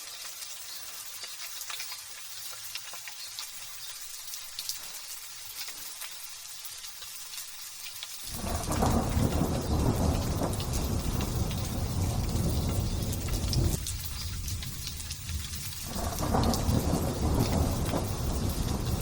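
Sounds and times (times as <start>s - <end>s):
light drizzle with drop ticks: 0.0s - 19.0s
thunder rumbling: 8.3s - 19.0s.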